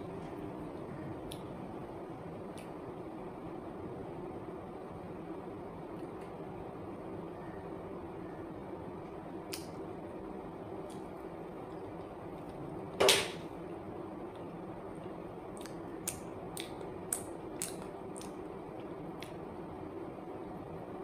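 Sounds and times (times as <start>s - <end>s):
low room hum: 0.0s - 21.0s
lip and mouth clicks chewing: 15.6s - 18.4s.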